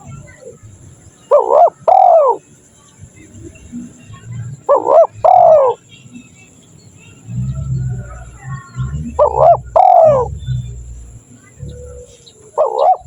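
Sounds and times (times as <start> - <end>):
dove cooing: 0.0 - 2.5, 3.8 - 5.9, 7.2 - 13.0.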